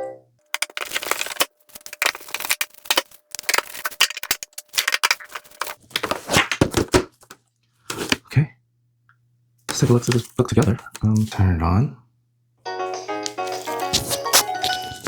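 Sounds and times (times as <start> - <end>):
plastic toy clicks and rattles: 0.5 - 5.8.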